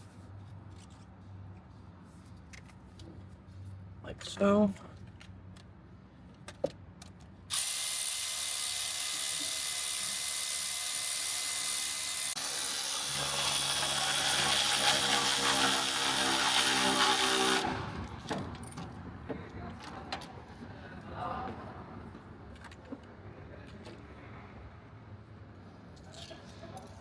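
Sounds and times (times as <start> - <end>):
cordless electric ratchet running: 7.5 - 17.7.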